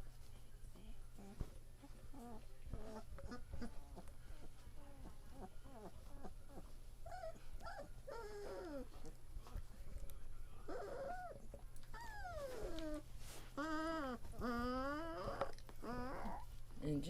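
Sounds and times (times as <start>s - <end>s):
puppies whimpering and squealing: 2.1s - 9.1s, 10.6s - 16.6s.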